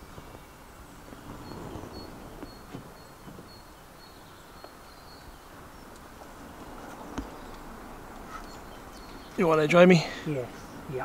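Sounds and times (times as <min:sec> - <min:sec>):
small bird call notes: 0:00.0 - 0:09.8
faint clicks: 0:05.9 - 0:06.2.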